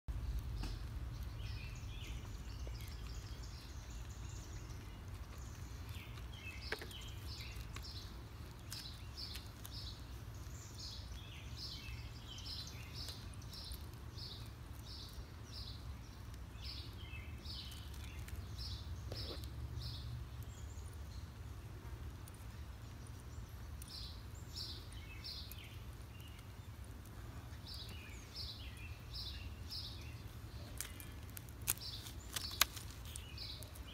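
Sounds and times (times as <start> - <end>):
steady low rumble: 0.1 - 25.0
birds chirping: 0.1 - 33.9.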